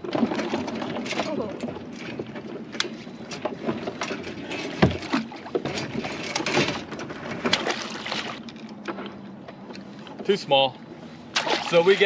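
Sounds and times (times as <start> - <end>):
heavy thump on kayak hull: 4.8 - 5.8.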